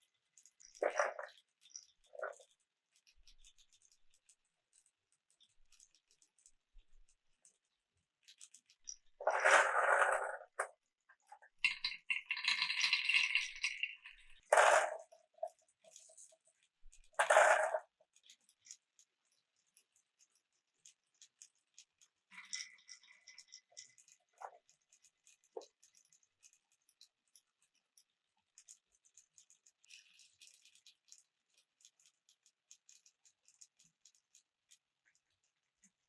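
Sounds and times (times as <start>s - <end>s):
marbles clicking in wooden run: 8.3s - 10.7s, 11.4s - 16.4s, 17.0s - 18.8s, 28.6s - 34.4s.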